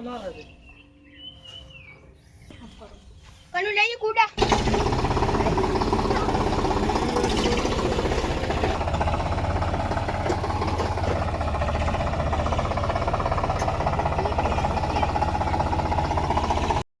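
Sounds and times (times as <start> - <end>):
tractor engine chugging: 3.6 - 16.9.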